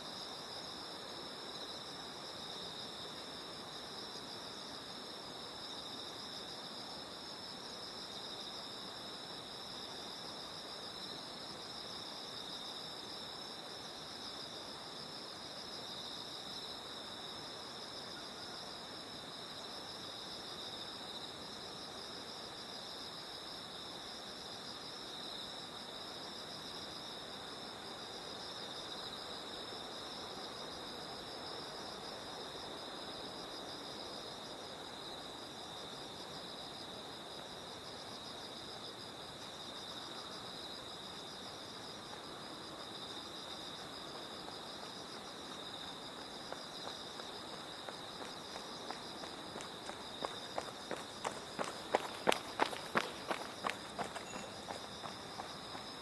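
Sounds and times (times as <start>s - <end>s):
insects trilling: 38.1s - 56.0s.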